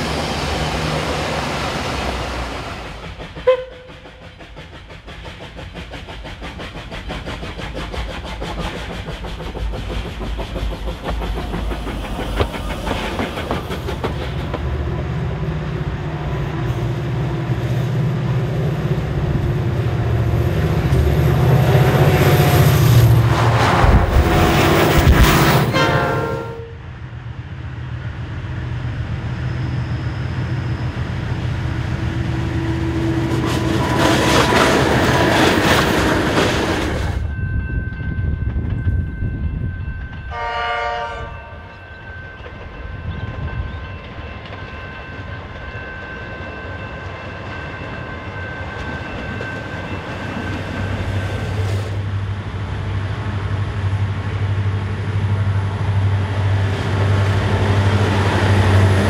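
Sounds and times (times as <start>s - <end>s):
diesel train passing: 0.0s - 59.0s
train horn blast: 3.4s - 4.0s, 25.6s - 26.8s, 40.3s - 41.7s
electric train whine: 8.0s - 59.0s
locomotive engine drone: 42.6s - 59.0s.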